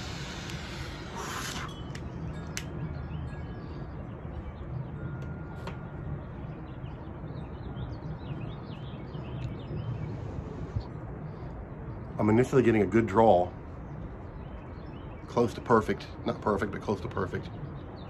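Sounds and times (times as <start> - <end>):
torch lighter hissing: 0.0 - 1.7
small birds chirping: 0.0 - 18.0.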